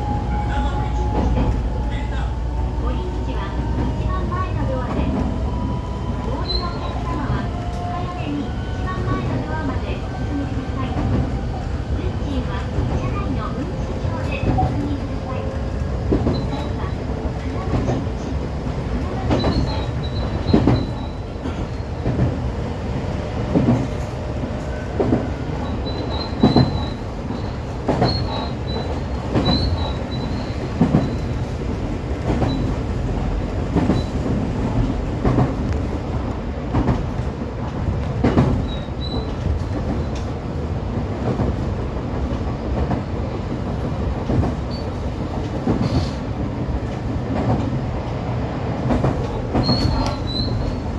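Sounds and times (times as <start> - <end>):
faint high wheel squeal: 25.5 - 31.3, 38.6 - 39.4, 49.6 - 50.9.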